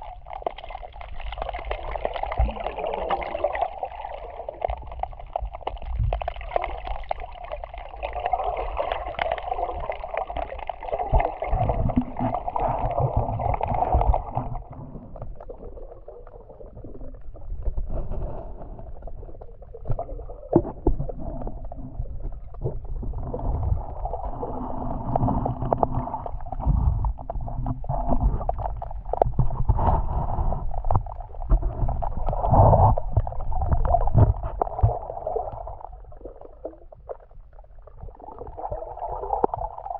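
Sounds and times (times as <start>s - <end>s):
muffled underwater water sloshing: 0.0s - 39.9s.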